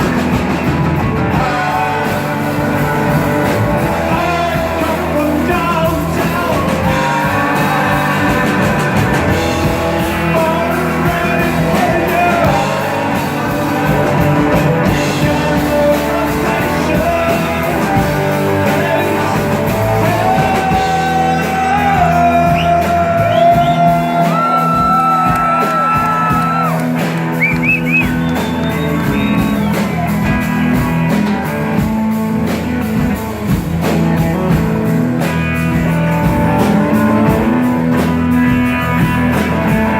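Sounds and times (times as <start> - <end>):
rock band playing live: 0.0 - 39.9
person singing: 1.2 - 27.3.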